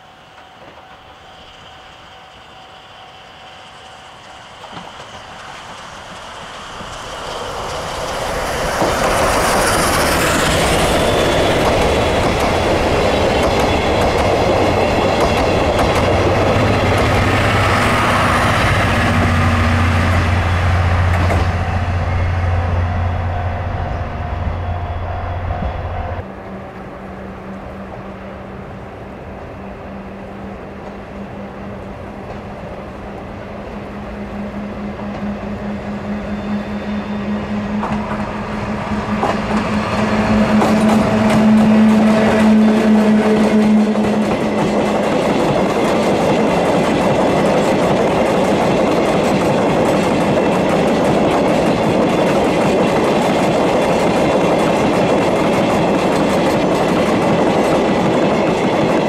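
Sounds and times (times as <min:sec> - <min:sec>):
train approaching hum: 0:00.0 - 0:59.0
train wheels clickety-clack: 0:03.8 - 0:22.2, 0:37.7 - 0:59.0.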